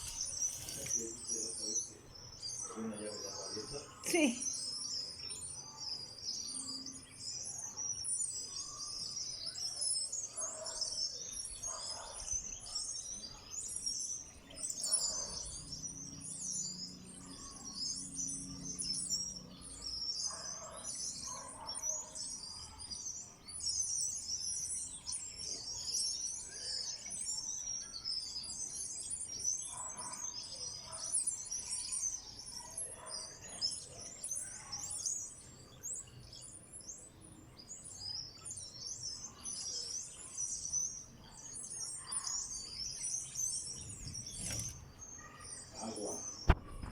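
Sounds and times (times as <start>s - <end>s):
flock of small birds chirping: 0.0s - 46.9s.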